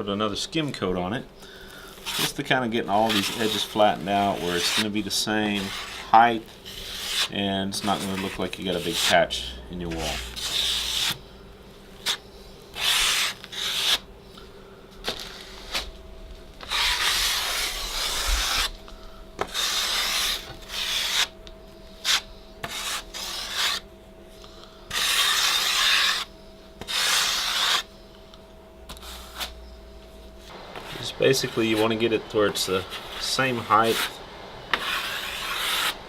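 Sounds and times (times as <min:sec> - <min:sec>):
drywall knife scraping: 0:02.0 - 0:09.3, 0:09.9 - 0:11.2, 0:12.0 - 0:14.0, 0:16.6 - 0:18.8, 0:19.4 - 0:21.3, 0:22.0 - 0:23.8, 0:24.9 - 0:27.9, 0:28.9 - 0:29.5, 0:30.8 - 0:36.0.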